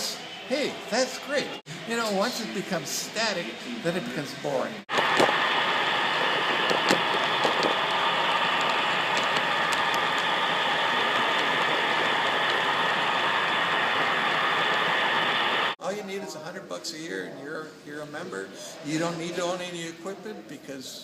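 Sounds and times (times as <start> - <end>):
model train motor whirring: 4.9 - 15.8.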